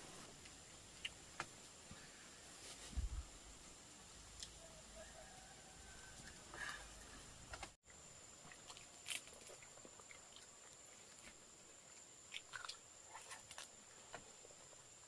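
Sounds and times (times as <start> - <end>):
chewing and crunching meat: 8.5 - 13.8.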